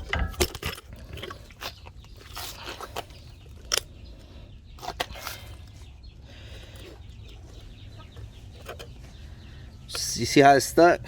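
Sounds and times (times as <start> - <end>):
metal clicks and knocks: 0.0 - 1.3.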